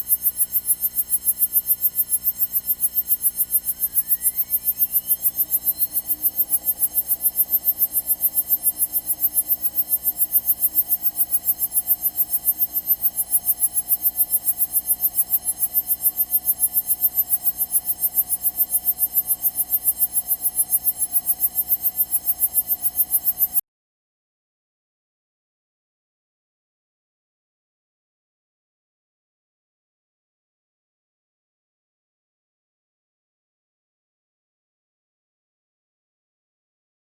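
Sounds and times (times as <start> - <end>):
pulsing electrical buzz: 2.1 - 23.6
whine rising in pitch: 3.8 - 11.2.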